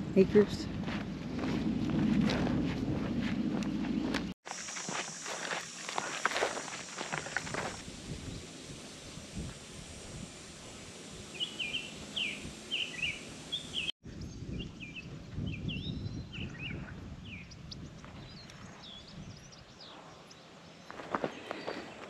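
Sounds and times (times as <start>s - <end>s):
small birds chirping: 11.3s - 22.0s.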